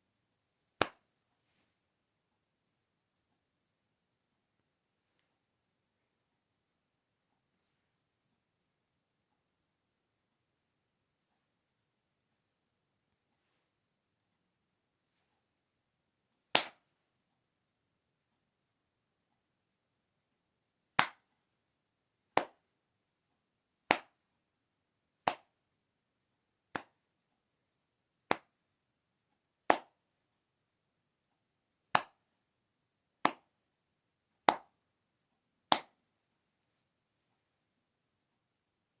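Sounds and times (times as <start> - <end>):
sharp clap-like impacts: 16.6 - 16.8, 21.0 - 21.2, 23.9 - 24.2, 25.3 - 25.5, 26.8 - 27.0, 31.9 - 32.2, 35.7 - 36.0.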